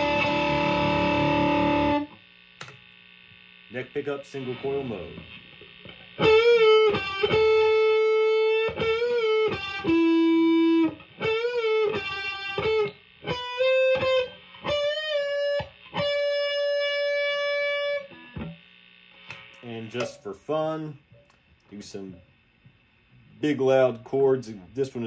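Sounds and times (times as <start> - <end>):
distorted electric guitar lead melody: 0.0 - 2.2, 4.6 - 18.6.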